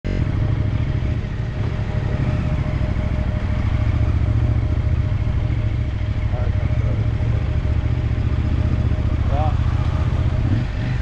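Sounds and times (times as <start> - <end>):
motorcycle engine running low speed: 0.1 - 11.0.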